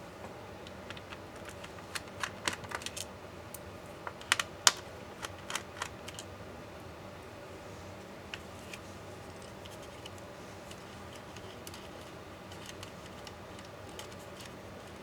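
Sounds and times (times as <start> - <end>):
laptop parts clicking: 4.1 - 6.3, 11.1 - 15.0.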